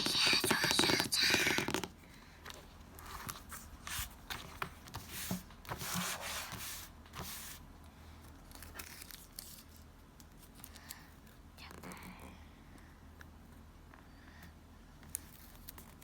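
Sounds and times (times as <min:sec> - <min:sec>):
paper crinkling and tearing: 0:08.4 - 0:09.8.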